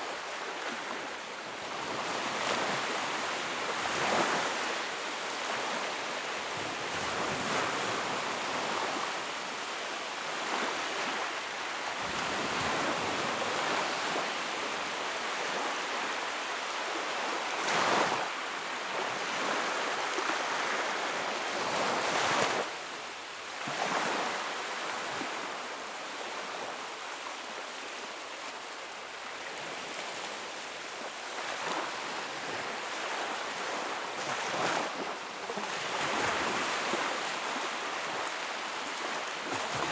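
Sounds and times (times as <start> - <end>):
sea waves breaking: 31.2 - 39.9.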